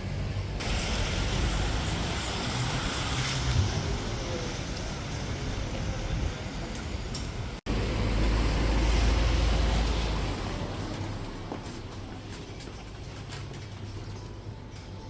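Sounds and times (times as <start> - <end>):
rumbling vehicle noise with hiss: 0.0 - 11.5.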